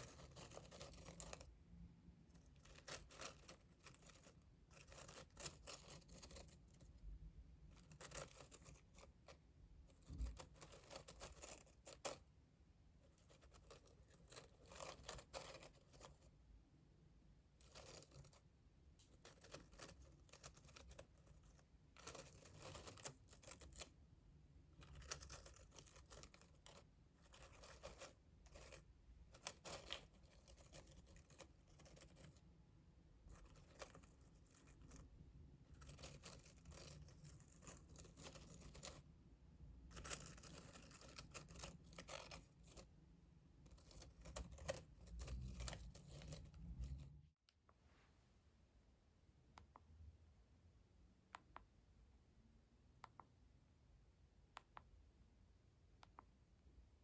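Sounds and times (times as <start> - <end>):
scratching and rustling strokes: 0.0 - 16.4, 17.4 - 39.2, 39.8 - 48.3.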